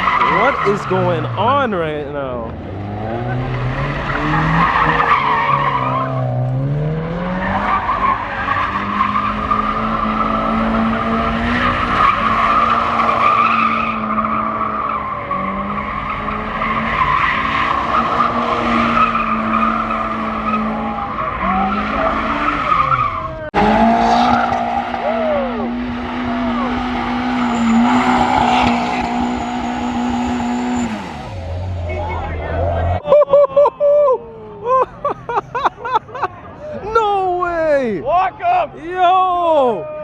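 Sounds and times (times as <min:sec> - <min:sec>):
tyres squealing: 0:00.0 - 0:01.6, 0:07.3 - 0:33.0
engine at high revs: 0:00.0 - 0:33.0.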